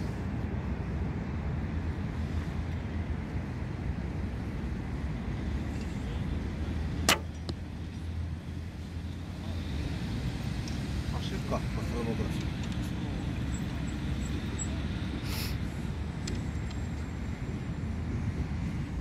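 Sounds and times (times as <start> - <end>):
bow string snapping: 7.1 - 7.6.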